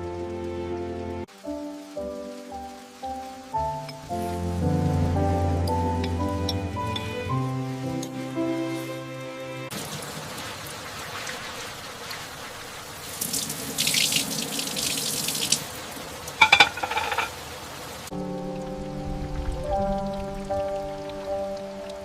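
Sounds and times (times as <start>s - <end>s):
water running and splashing: 0.0s - 22.0s.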